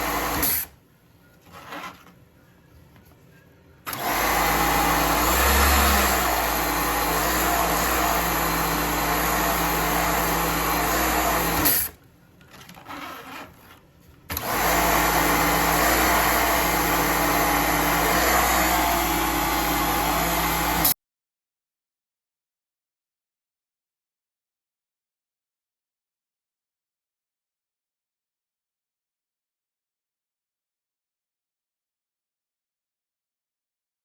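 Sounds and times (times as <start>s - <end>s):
cleaning machine motor running: 3.9s - 11.9s, 14.3s - 21.0s.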